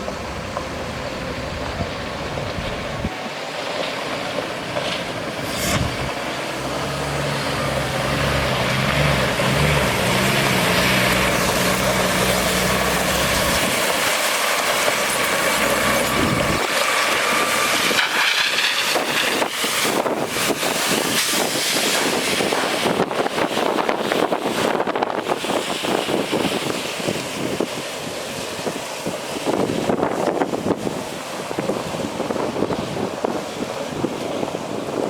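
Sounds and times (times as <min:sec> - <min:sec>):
diesel engine idling: 0:00.0 - 0:21.0
water rushing from sprayers: 0:00.0 - 0:35.0.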